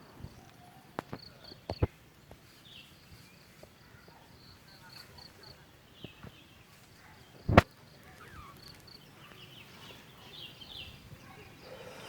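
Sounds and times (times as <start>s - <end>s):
faint high bird chirps: 2.5s - 12.0s.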